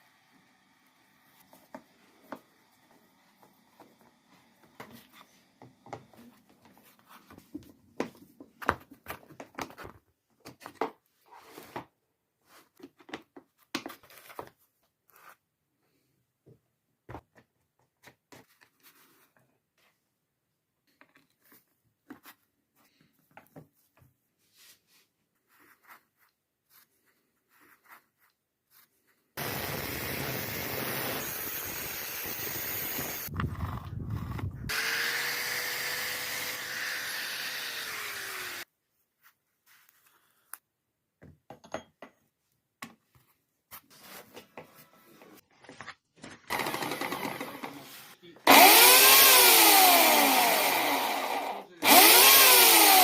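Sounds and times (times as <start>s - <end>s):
electric motor whine: 29.4s - 33.3s, 34.2s - 38.6s, 48.5s - 53.0s.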